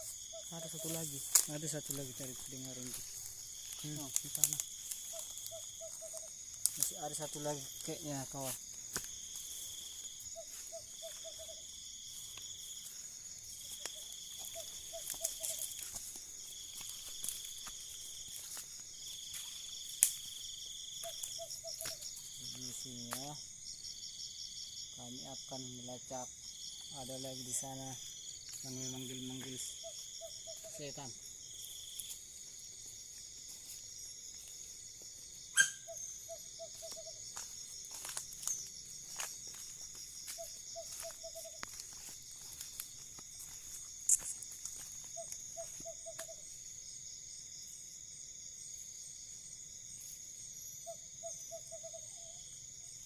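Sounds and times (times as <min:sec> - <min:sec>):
crickets and night insects chirping: 0:00.0 - 0:53.0
owl hooting: 0:35.5 - 0:37.2
sharp animal cry: 0:35.5 - 0:37.2.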